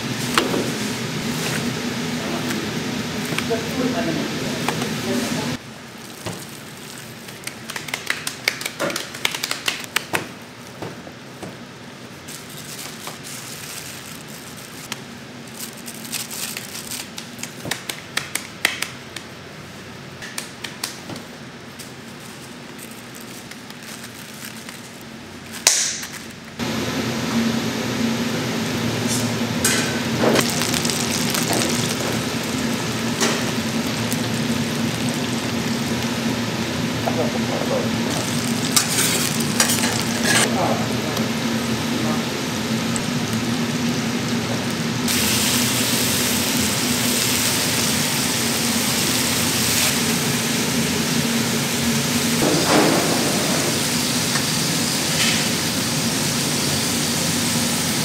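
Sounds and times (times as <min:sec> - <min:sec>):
food frying sizzle: 0:28.7 - 0:58.0.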